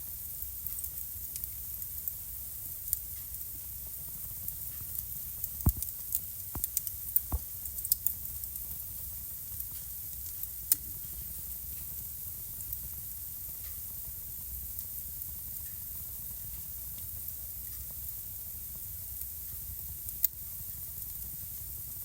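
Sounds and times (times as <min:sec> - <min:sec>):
fire crackling hiss and rumble: 0:00.0 - 0:22.0
fire pops: 0:03.9 - 0:08.8
faint ticks: 0:04.2 - 0:08.6.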